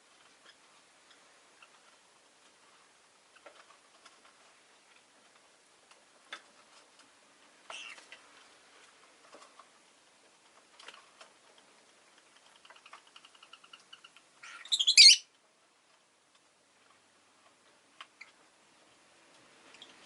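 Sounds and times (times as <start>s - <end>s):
lovebird chattering: 12.7s - 15.3s
loud shrill bird chirp: 14.4s - 15.2s.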